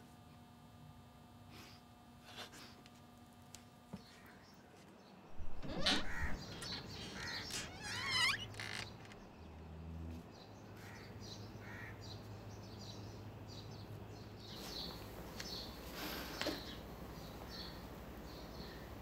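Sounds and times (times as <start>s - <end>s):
birds calling: 5.3s - 9.7s.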